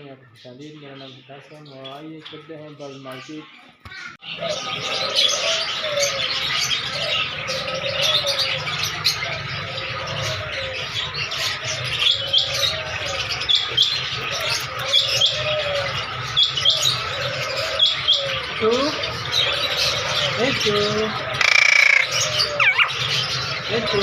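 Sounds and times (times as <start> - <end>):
birds chirping chorus: 0.0 - 24.0
sharp paired chirps: 21.4 - 22.9.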